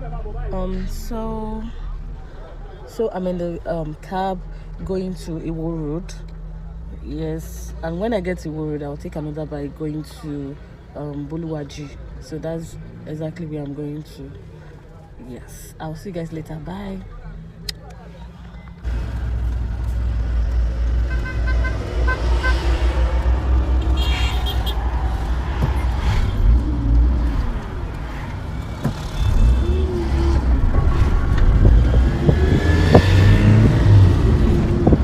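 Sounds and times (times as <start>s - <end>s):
traffic engine and road rumble: 0.0s - 35.0s.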